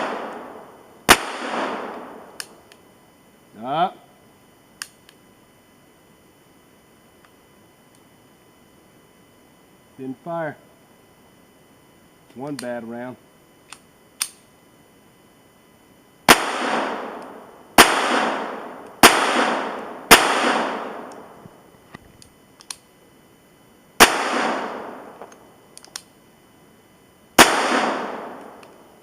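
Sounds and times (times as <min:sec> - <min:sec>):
pistol shots echoing: 0:00.0 - 0:02.4, 0:16.3 - 0:21.3, 0:24.0 - 0:25.2, 0:27.4 - 0:28.6.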